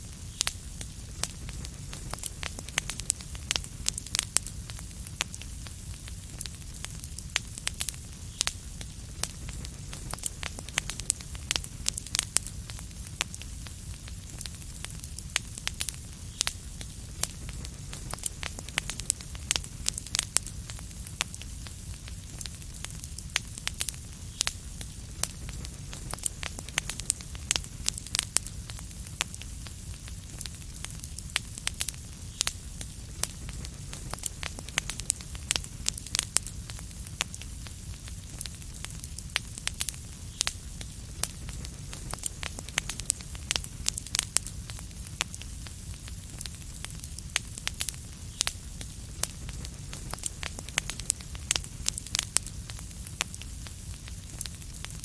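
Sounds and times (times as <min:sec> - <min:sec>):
fireplace fire crackling: 0:00.0 - 0:55.0.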